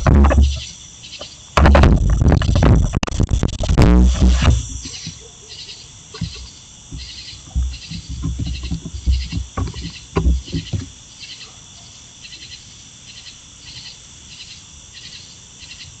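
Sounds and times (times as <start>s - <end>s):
knocks and scrapes on camera: 0.0s - 0.7s, 1.6s - 5.2s, 6.2s - 10.9s.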